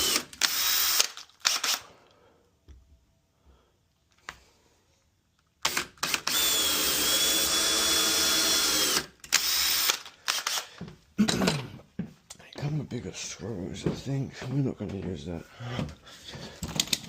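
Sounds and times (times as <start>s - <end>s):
power drill running: 0.0s - 1.9s, 5.6s - 10.7s.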